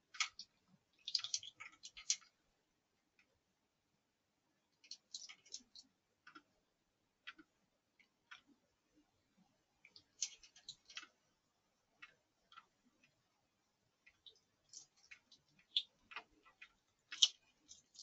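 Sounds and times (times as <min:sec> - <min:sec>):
faint clicks and taps: 0:00.0 - 0:02.4, 0:04.8 - 0:06.6, 0:07.2 - 0:11.3, 0:11.9 - 0:13.3, 0:14.0 - 0:18.0.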